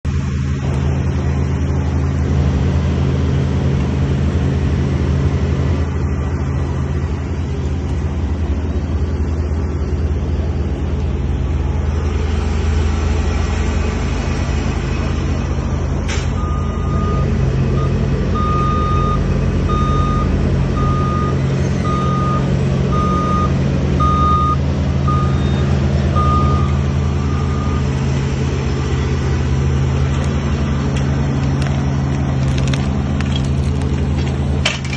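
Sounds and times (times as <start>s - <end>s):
heavy vehicle engine running: 0.0s - 34.9s
reversing alarm beeping: 16.2s - 28.1s.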